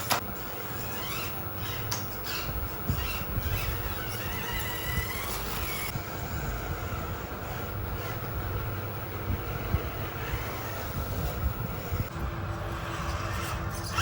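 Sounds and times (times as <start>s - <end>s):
electric motor and gears whining: 0.0s - 14.0s.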